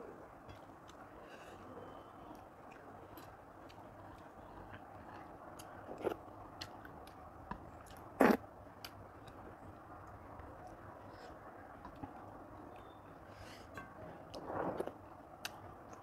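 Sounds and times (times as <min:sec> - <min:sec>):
person chewing food: 0:00.4 - 0:13.0.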